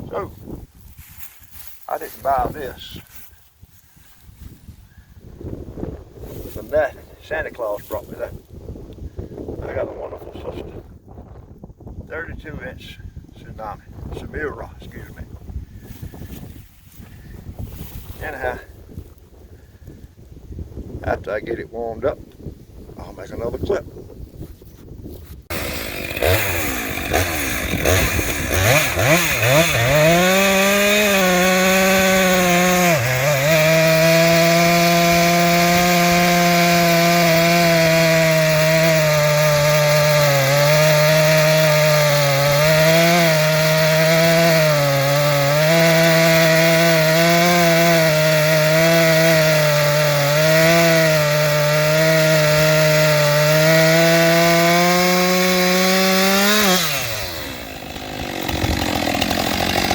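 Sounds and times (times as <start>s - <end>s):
chainsaw running: 25.5s - 59.9s.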